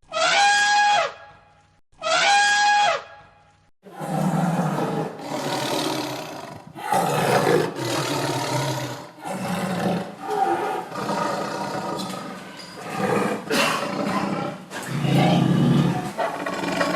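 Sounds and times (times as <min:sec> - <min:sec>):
animal roars: 0:03.9 - 0:16.9.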